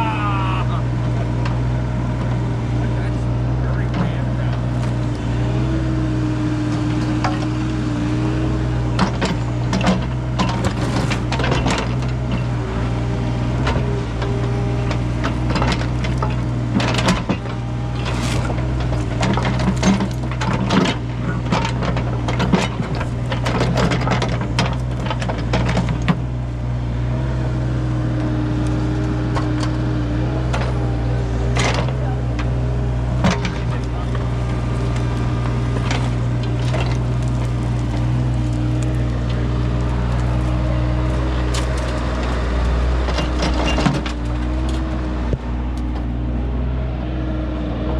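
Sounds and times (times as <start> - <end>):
excavator engine running: 0.0 - 47.9
bucket knocks clanks and scrapes: 9.0 - 12.1, 15.4 - 26.2.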